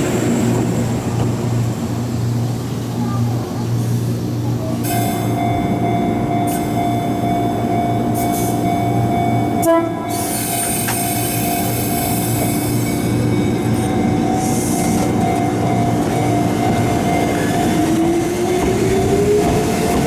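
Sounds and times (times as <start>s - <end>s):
train wheels rumbling: 0.0s - 20.0s
electric train high-pitched tone: 4.8s - 20.0s.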